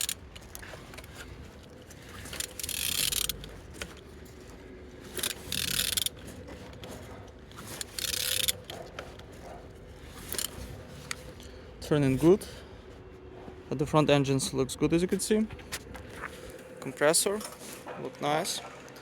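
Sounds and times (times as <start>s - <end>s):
mechanical clicking and scraping: 0.0s - 11.6s
engine turned over by hand: 0.0s - 12.1s.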